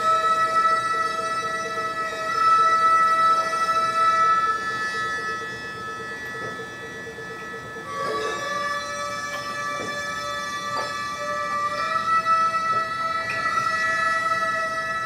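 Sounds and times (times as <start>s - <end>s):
ceremonial wind instrument chords: 0.0s - 15.0s.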